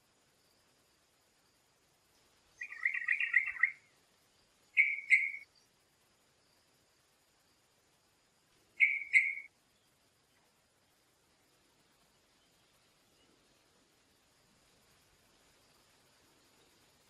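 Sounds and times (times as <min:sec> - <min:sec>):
songbird chirps: 0:00.0 - 0:17.0
short clear bird notes: 0:08.8 - 0:09.5.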